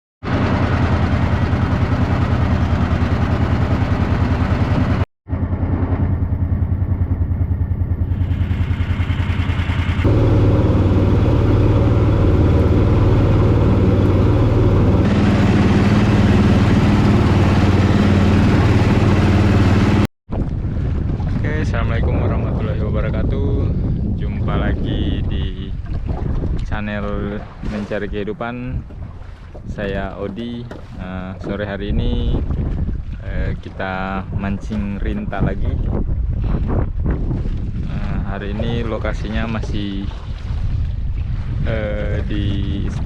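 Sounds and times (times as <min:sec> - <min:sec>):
small engine running: 0:00.3 - 0:20.1.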